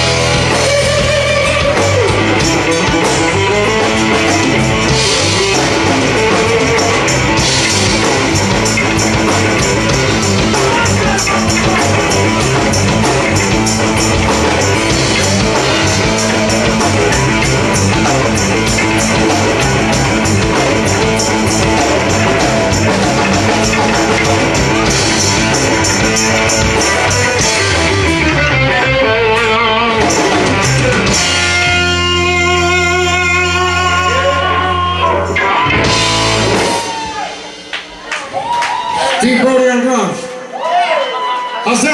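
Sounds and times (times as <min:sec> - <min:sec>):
drum kit: 0:00.0 - 0:39.2
electric guitar: 0:00.0 - 0:39.2
rock band playing: 0:00.0 - 0:41.9.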